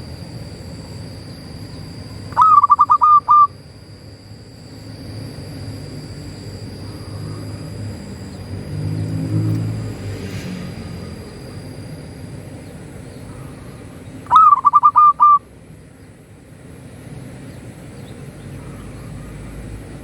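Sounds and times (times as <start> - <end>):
dove cooing: 2.1 - 3.6, 13.1 - 15.5.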